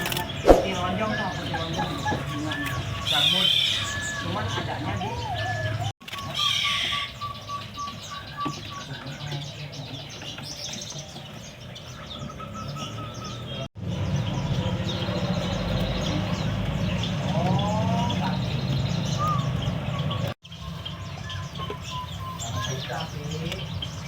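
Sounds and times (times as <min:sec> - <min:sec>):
caged songbirds chirping: 0:00.0 - 0:24.0
whistled bird notes: 0:00.0 - 0:24.0.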